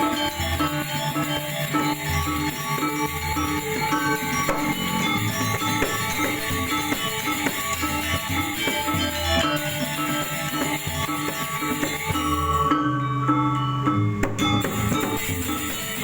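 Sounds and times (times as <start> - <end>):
metallophones ringing: 0.0 - 16.0
deep gong tone: 4.4 - 7.7.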